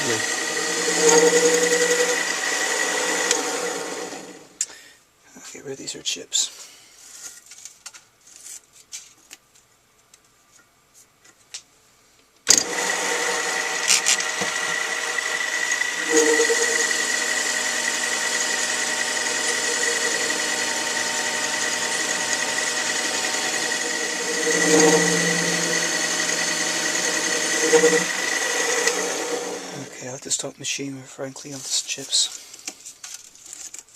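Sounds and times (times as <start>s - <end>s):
metal lathe motor whining: 0.0s - 4.6s, 12.5s - 30.0s.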